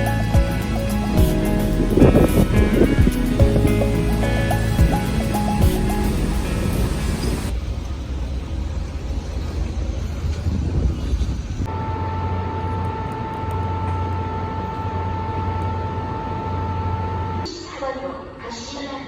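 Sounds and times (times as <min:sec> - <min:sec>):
high whine: 0:00.0 - 0:09.3, 0:11.7 - 0:17.5
low hum: 0:00.0 - 0:17.5.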